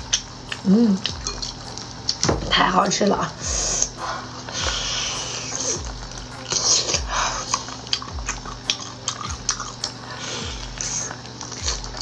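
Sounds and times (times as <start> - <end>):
wet crackly mouth sounds: 0.0 - 2.4, 3.3 - 12.0
low thuds: 2.2 - 4.0
person biting and chewing: 3.8 - 12.0.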